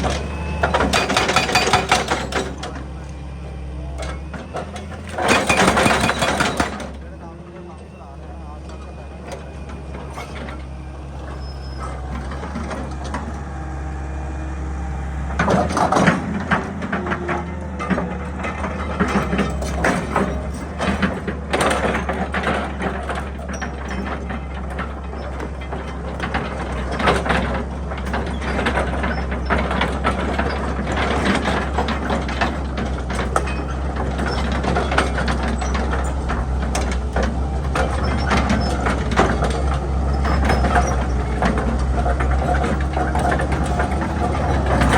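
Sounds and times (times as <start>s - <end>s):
excavator diesel engine running: 0.0s - 44.9s
bucket clanking and scraping rock: 15.3s - 44.9s.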